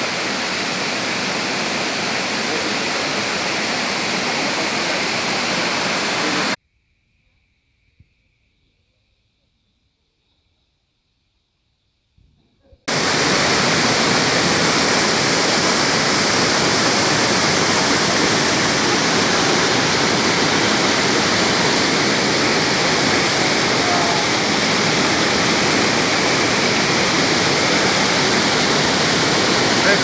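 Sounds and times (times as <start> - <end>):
waterfall rushing: 0.0 - 6.6, 12.9 - 30.0.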